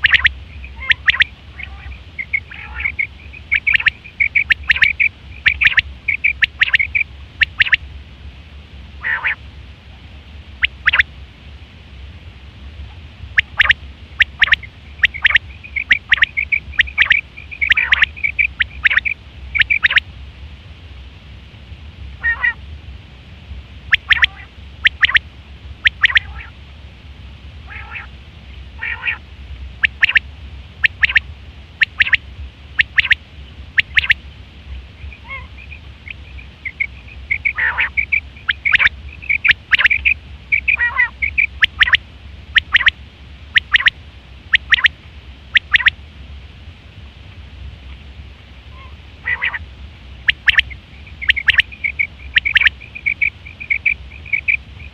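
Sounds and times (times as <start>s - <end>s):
quail calling: 0.0s - 7.8s, 9.0s - 9.4s, 10.6s - 11.1s, 12.9s - 20.0s, 22.2s - 22.6s, 23.9s - 25.2s, 25.8s - 26.6s, 27.6s - 28.1s, 28.8s - 29.2s, 29.8s - 30.2s, 30.8s - 31.2s, 31.8s - 32.2s, 32.8s - 34.2s, 35.0s - 44.9s, 45.5s - 45.9s, 48.7s - 49.6s, 50.3s - 54.9s
faint low hum: 0.0s - 54.9s.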